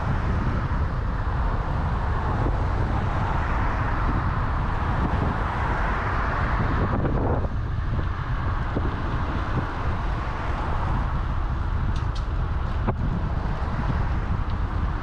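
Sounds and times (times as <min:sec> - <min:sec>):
road and traffic hiss: 0:00.0 - 0:15.0
wind buffeting microphone: 0:00.0 - 0:15.0.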